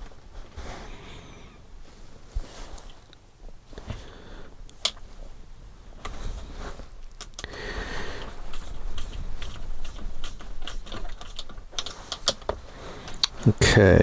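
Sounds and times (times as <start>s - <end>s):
plastic parts clicking and tapping: 8.2s - 13.3s.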